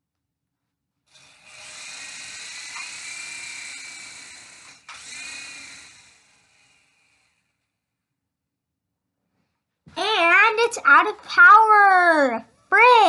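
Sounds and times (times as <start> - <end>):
toy helicopter motor whining: 1.1 - 7.9.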